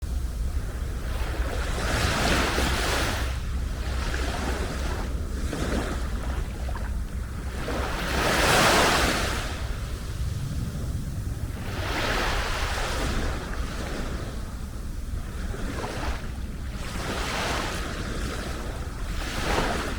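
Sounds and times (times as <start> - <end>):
small waves washing up beach: 0.1 - 19.9.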